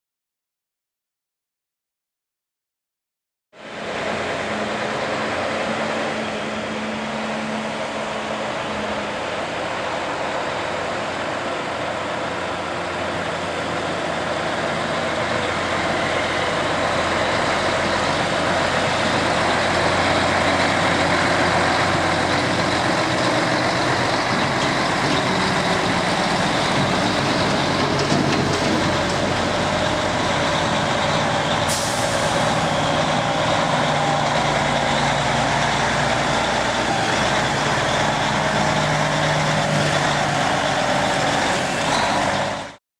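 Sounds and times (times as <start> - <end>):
diesel truck engine running: 3.7 - 42.8
short hiss of air: 31.7 - 32.8.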